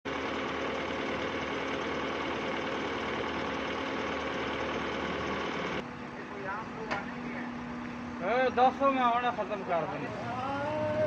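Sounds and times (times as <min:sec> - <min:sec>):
excavator diesel engine running: 0:00.1 - 0:11.0.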